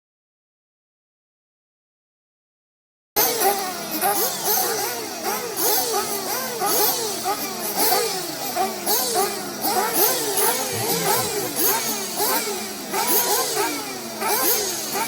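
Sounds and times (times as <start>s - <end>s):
model buggy engines revving: 3.2s - 15.0s.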